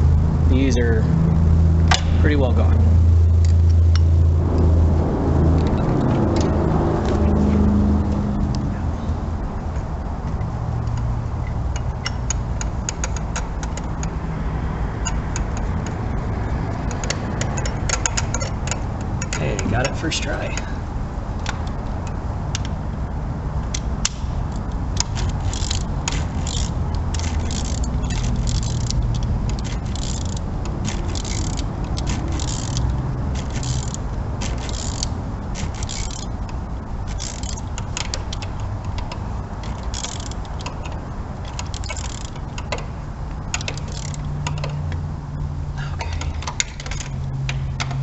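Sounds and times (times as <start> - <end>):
low hum: 0.0 - 48.0
ratchet wrench clicking: 10.9 - 14.2, 15.0 - 16.0, 16.8 - 20.7, 23.7 - 45.0.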